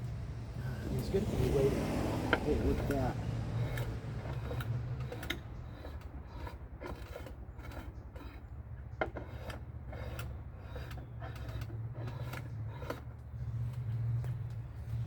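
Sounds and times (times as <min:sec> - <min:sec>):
steel wool scratching metal: 0:02.3 - 0:14.3.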